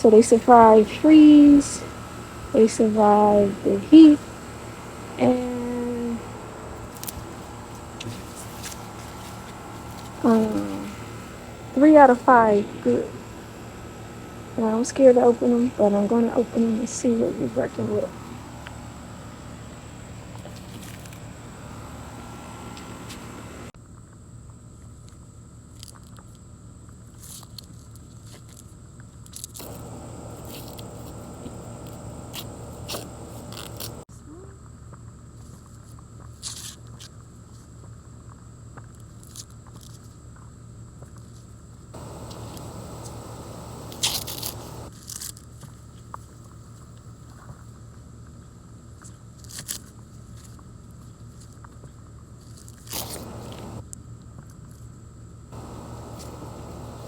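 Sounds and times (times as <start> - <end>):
low background hum: 0.0 - 23.8, 29.6 - 34.1, 42.0 - 44.9, 52.9 - 53.8, 55.6 - 57.0
corn husks crinkling and tearing: 6.2 - 12.3, 17.6 - 23.6, 29.6 - 34.0, 42.0 - 45.2, 52.8 - 53.8
corn husks ripping: 42.4 - 44.8, 52.9 - 53.8.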